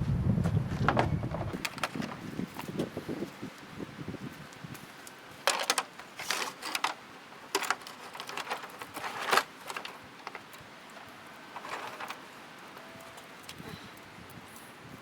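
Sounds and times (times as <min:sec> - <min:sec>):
clicks and rattles of tools: 0:01.6 - 0:02.9, 0:05.0 - 0:14.0.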